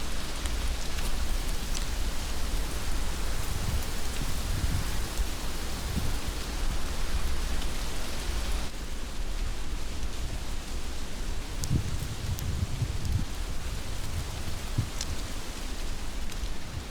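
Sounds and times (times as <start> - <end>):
heavy rain falling: 0.0 - 9.4.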